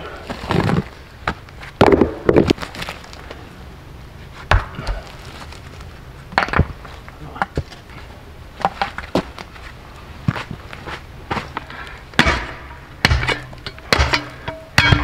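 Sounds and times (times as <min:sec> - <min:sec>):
sharp knocks and thuds: 0:04.5 - 0:05.0, 0:12.2 - 0:15.0.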